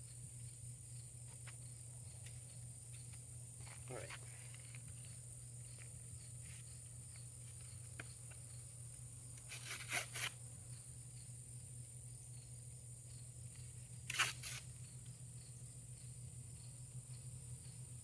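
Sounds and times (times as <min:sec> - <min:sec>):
insect drone: 0:00.0 - 0:18.0
low outdoor hum: 0:00.0 - 0:18.0
scraping strokes: 0:09.4 - 0:10.4, 0:14.1 - 0:14.7.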